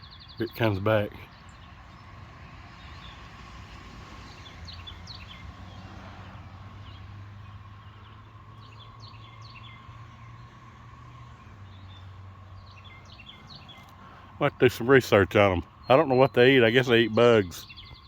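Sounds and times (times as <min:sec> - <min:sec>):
swallows chirping: 0:04.3 - 0:05.9, 0:06.8 - 0:10.6, 0:11.3 - 0:18.0.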